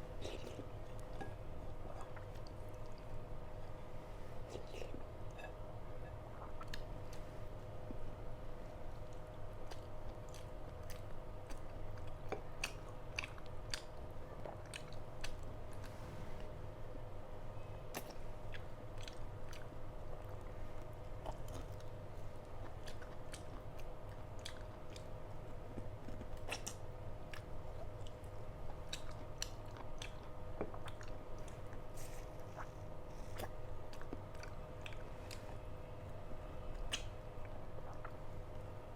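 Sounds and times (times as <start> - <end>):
person chewing food: 0.2 - 3.8, 8.8 - 16.0, 17.9 - 38.6
wet mouth clicks: 36.8 - 37.2.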